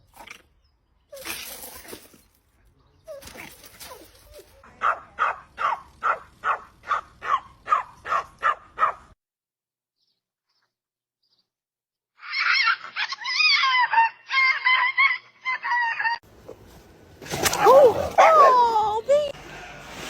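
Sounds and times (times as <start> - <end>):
dog barking: 4.8 - 9.2, 17.6 - 18.8.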